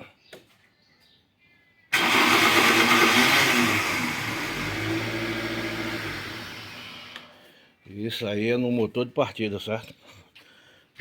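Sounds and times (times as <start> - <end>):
car engine running: 2.0 - 7.2
starter motor grinding whir: 2.0 - 7.3.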